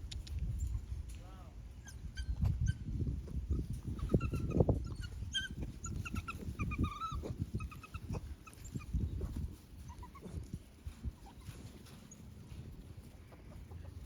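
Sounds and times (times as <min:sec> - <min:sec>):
puppies whimpering and squeaking: 0:01.8 - 0:12.6.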